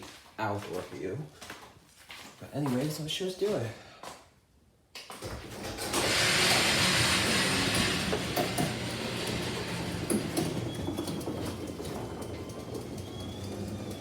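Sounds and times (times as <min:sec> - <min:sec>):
door rattling: 0:05.2 - 0:14.0
garage door opener running: 0:05.2 - 0:14.0.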